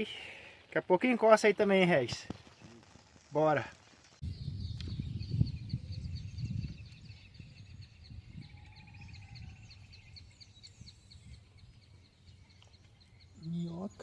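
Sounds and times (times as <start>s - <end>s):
bird chirping: 4.2s - 14.0s.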